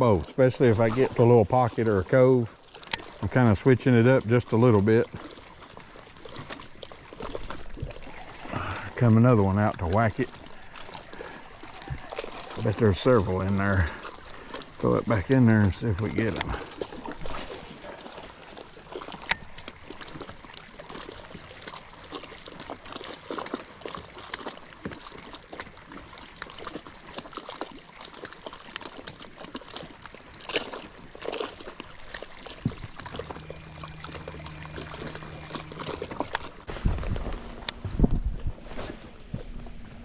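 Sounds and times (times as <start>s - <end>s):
water trickling and splashing: 0.0s - 40.0s
steady low hum: 32.0s - 40.0s.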